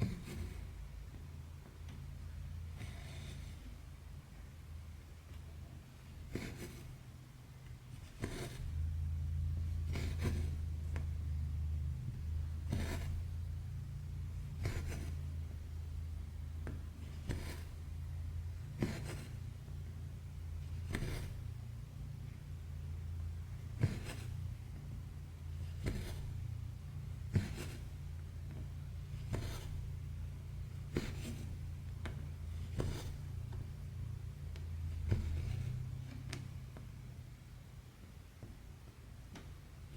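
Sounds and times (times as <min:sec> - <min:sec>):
steady low hum: 0:00.0 - 0:39.9
thread rasping through fabric: 0:07.9 - 0:11.1, 0:12.4 - 0:13.4, 0:14.4 - 0:21.7, 0:23.6 - 0:24.8, 0:25.4 - 0:36.7
low hum: 0:08.5 - 0:17.1
scratchy pull of thread: 0:12.6 - 0:13.3, 0:16.6 - 0:17.8, 0:25.6 - 0:26.4, 0:27.3 - 0:28.0, 0:29.1 - 0:30.0, 0:30.7 - 0:33.5.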